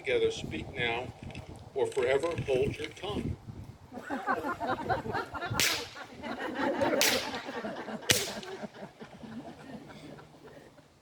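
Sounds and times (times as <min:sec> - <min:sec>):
whip cracks: 0:05.6 - 0:06.1, 0:06.8 - 0:08.7.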